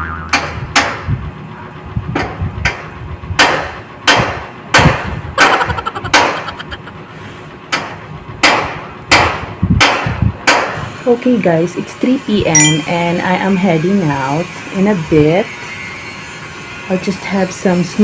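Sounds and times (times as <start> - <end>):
hammer strikes: 0.0 - 1.1, 2.2 - 6.6, 7.7 - 10.8.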